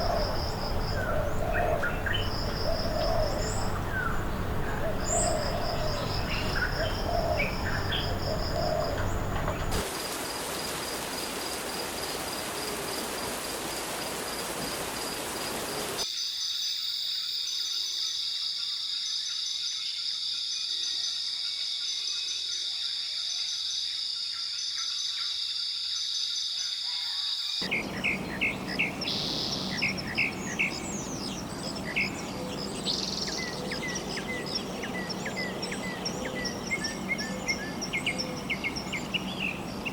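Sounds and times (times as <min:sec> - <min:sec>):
repeated bird calls: 0:00.0 - 0:09.8
birds chirping: 0:00.0 - 0:09.9, 0:27.6 - 0:39.9.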